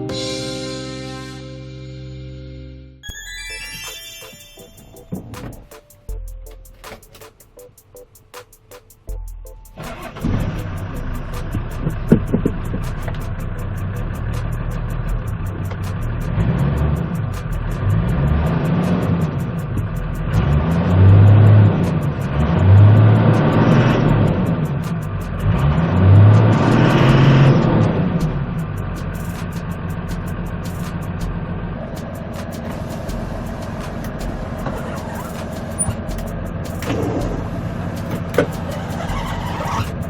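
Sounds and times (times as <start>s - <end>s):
diesel truck engine revving: 14.2s - 28.8s.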